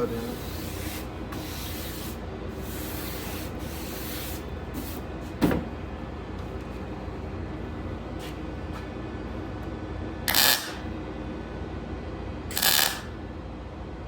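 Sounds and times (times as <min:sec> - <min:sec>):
welding crackling hiss: 0:10.3 - 0:10.8, 0:12.5 - 0:13.1.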